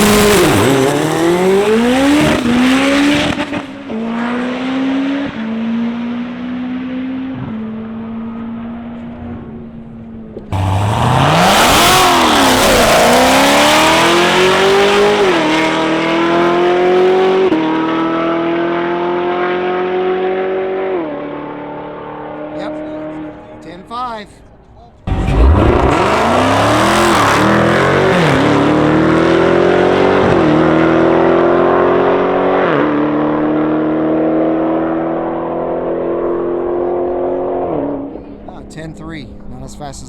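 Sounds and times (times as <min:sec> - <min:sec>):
drag racing car accelerating: 0:00.0 - 0:23.6, 0:25.0 - 0:39.5
second car engine launching: 0:10.3 - 0:17.4, 0:24.9 - 0:31.5.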